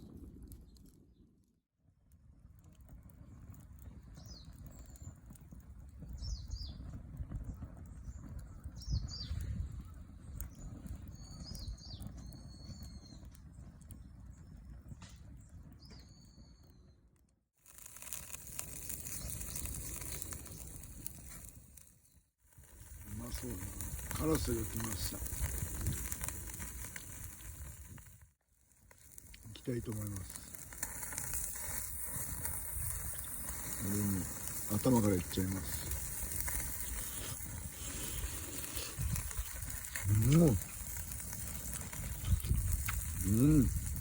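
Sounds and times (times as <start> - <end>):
wind rumbling on microphone: 2.8 - 16.1, 22.5 - 28.2, 29.2 - 44.0
small birds chirping: 3.2 - 5.4, 6.0 - 17.0, 18.0 - 27.4, 31.3 - 44.0
fish sizzling over campfire: 3.2 - 9.6, 17.6 - 44.0.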